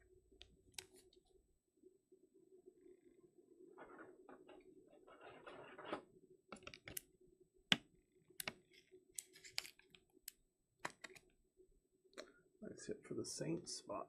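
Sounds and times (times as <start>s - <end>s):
sharp clicks and taps: 8.4s - 8.6s.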